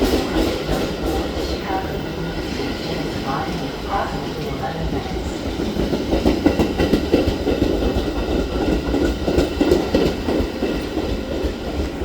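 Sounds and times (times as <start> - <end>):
train wheels clattering on rails: 0.0 - 12.0.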